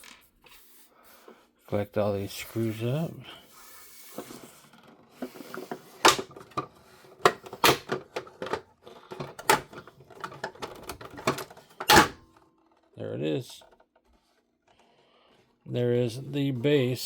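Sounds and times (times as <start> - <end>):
small parts clicking and clattering: 0.0 - 0.3, 4.2 - 14.8.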